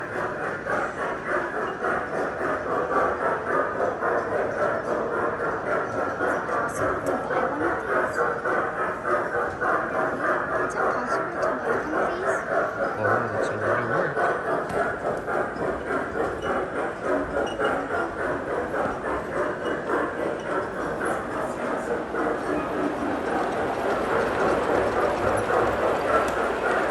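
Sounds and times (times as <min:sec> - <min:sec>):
model train rattling on track: 0:00.0 - 0:26.9.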